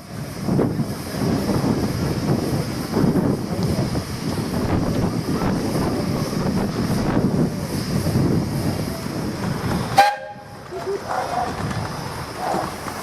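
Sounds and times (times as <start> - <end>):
miniature steam locomotive running: 0.0 - 13.0
wind buffeting microphone: 0.0 - 13.0
steam whistle toot: 10.0 - 10.6.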